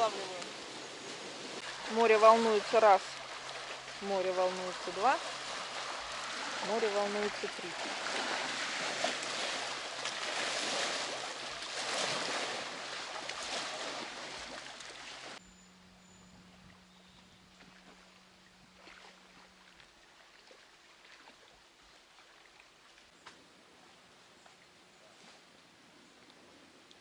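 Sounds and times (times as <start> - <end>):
waves splashing against bank: 0.0 - 15.4.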